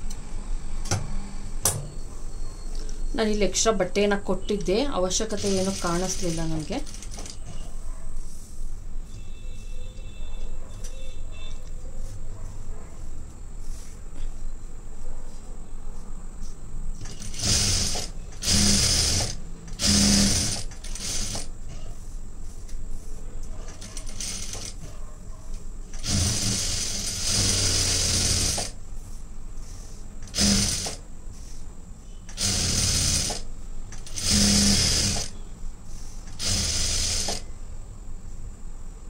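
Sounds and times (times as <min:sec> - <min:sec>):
sewing machine stitching: 0:05.2 - 0:07.4, 0:17.0 - 0:21.5, 0:23.7 - 0:24.8, 0:26.0 - 0:28.8, 0:30.2 - 0:31.0, 0:32.3 - 0:35.4, 0:36.3 - 0:37.4.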